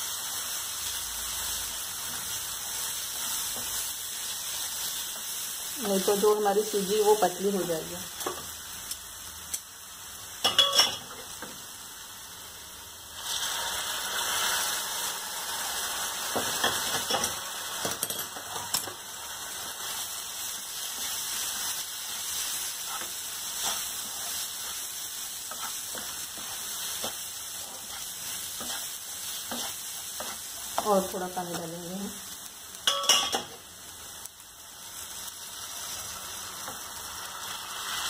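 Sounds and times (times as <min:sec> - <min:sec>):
liquid sizzling in a frying pan: 0:00.0 - 0:38.0
wooden spatula scraping and stirring: 0:22.6 - 0:31.0.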